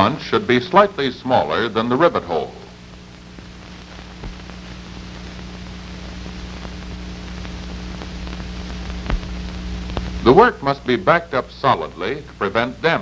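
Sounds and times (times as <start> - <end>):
narrator speaking: 0.0 - 2.8, 10.2 - 13.0
film soundtrack hiss and hum: 0.0 - 13.0.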